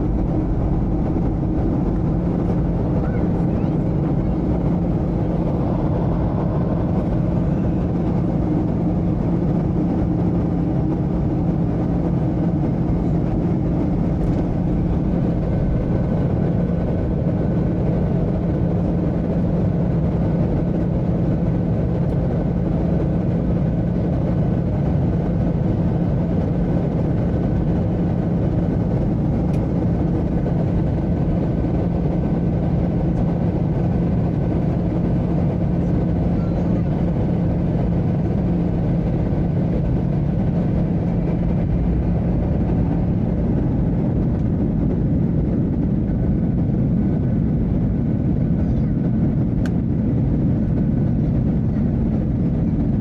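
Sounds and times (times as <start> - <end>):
airflow rush: 0.0 - 10.3
low hum: 0.0 - 20.6
jet engine drone: 0.0 - 53.0.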